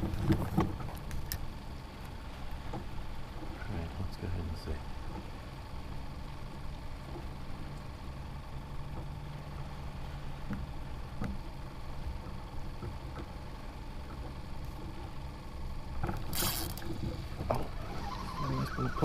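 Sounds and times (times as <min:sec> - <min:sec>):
low motor hum: 0:00.0 - 0:19.0
faint ticks: 0:06.4 - 0:08.0, 0:10.4 - 0:15.2.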